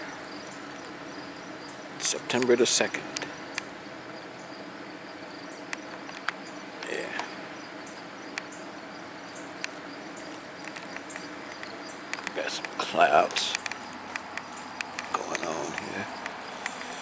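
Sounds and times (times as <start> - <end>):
faint insect chirping: 0.0 - 17.0
sharp clicks: 9.6 - 17.0.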